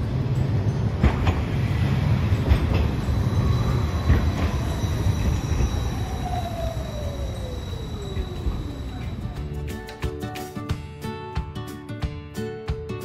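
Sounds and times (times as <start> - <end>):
tram rumbling past: 0.0 - 10.4
wheels knocking on rails: 1.0 - 10.1
slowly falling tone: 2.9 - 9.5
high steady whine: 3.0 - 9.8.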